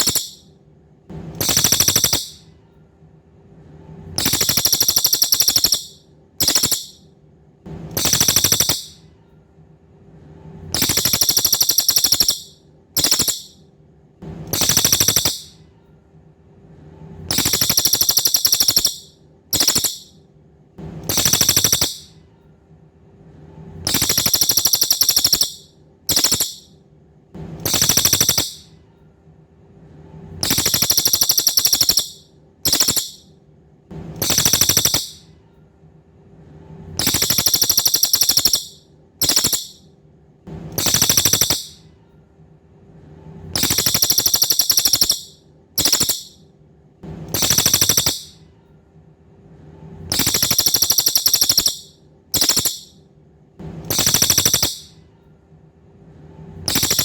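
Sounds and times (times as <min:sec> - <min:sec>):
bird song buzzy trills: 0:00.0 - 0:00.5, 0:01.4 - 0:02.5, 0:04.2 - 0:07.0, 0:07.9 - 0:09.0, 0:10.7 - 0:13.6, 0:14.5 - 0:15.6, 0:17.3 - 0:20.2, 0:21.0 - 0:22.2, 0:23.8 - 0:26.7, 0:27.6 - 0:28.8, 0:30.4 - 0:33.3, 0:34.2 - 0:35.3, 0:37.0 - 0:39.8, 0:40.8 - 0:41.9, 0:43.5 - 0:46.4, 0:47.3 - 0:48.4, 0:50.1 - 0:53.0, 0:53.9 - 0:55.0, 0:56.7 - 0:57.0.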